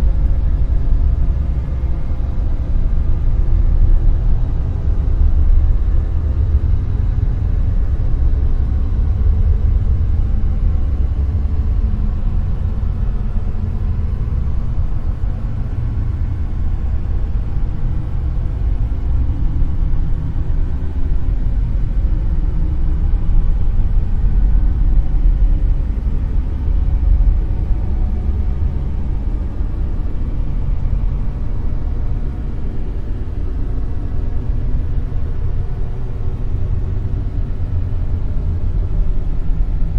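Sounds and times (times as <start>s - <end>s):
deep rumbling hiss: 0.0s - 39.9s.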